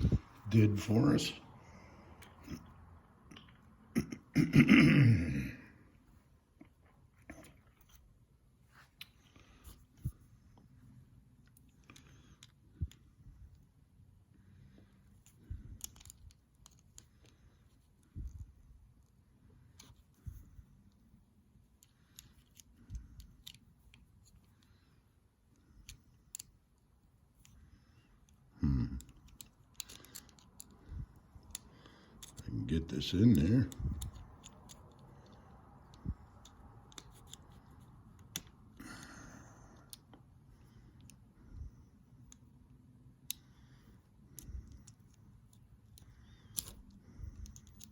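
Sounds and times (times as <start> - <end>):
small metal parts clicking: 15.1 - 18.0, 21.7 - 24.7, 25.6 - 26.6, 29.0 - 32.4, 33.0 - 38.5, 43.2 - 47.9.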